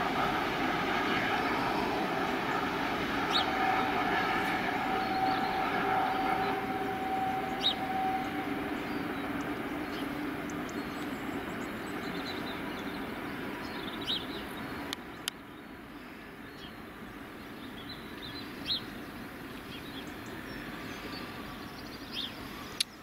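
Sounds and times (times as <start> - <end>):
train rumble: 0.0 - 15.9.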